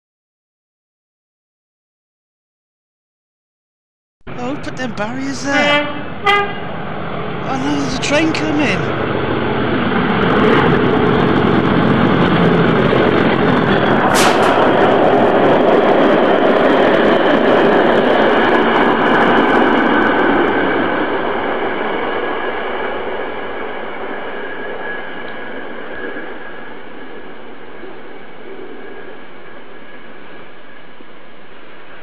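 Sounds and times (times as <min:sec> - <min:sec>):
passenger train passing at speed: 0:04.3 - 0:32.0.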